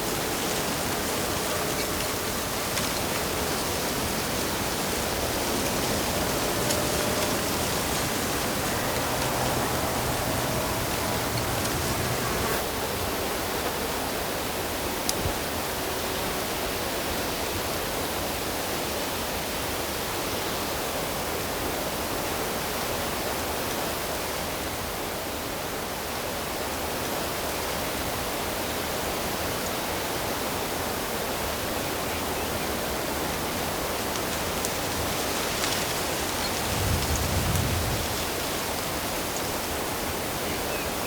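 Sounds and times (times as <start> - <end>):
flowing water rushing: 0.0 - 12.6.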